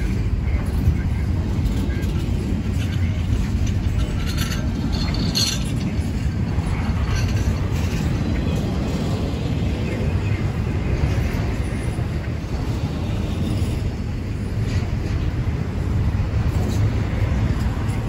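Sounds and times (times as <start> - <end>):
train wheels rumbling on rail: 0.0 - 18.0
metallic clinks: 2.0 - 8.1.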